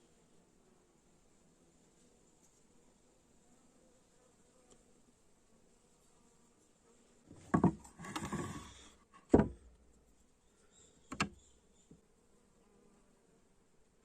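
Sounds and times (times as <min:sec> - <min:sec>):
short scraping noise: 0:07.4 - 0:08.9
sharp knocks: 0:09.3 - 0:09.6.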